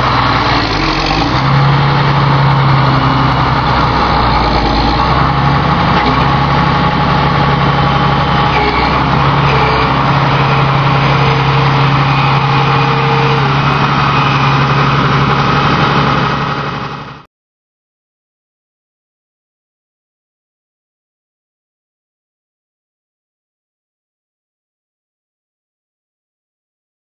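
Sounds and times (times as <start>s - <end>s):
harvest machinery engine drone: 0.0s - 17.3s.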